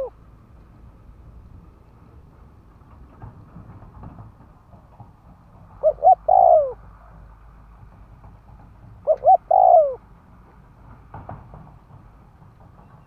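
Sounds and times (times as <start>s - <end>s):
dove cooing: 5.8s - 6.8s, 9.0s - 10.0s.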